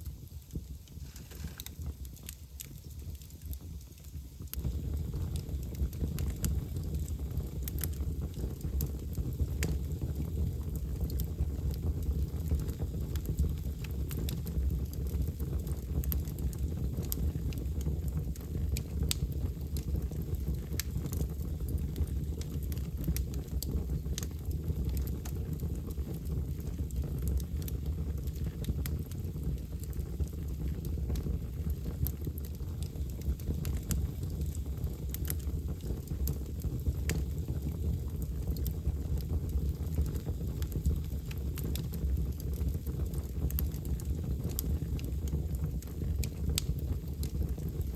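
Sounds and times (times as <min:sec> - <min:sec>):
fire crackling in fireplace: 0:00.0 - 0:47.9.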